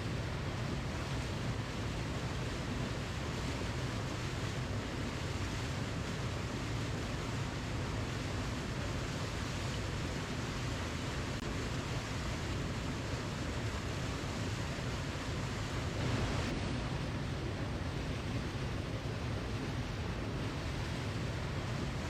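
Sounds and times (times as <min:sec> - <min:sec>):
waterfall rushing: 0:15.3 - 0:20.3.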